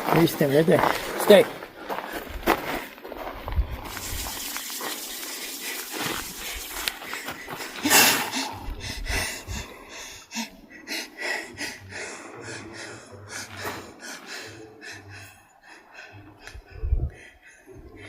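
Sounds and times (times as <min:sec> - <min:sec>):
person gasping and snorting: 0:05.5 - 0:18.0.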